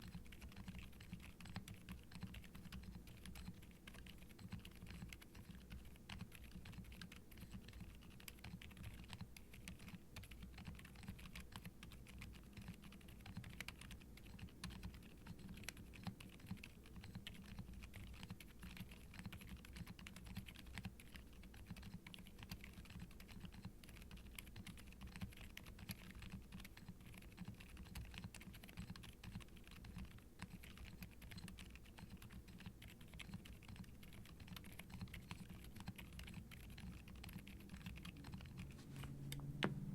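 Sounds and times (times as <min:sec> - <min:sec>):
soft keyboard typing: 0:00.0 - 0:39.9.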